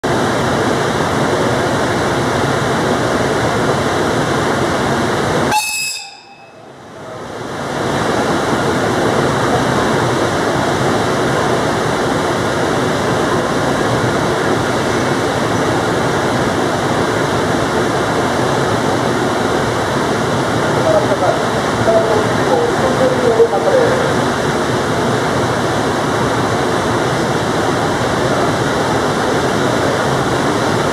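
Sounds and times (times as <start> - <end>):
train rushing noise: 0.0 - 30.9
brief high tone: 5.5 - 6.8.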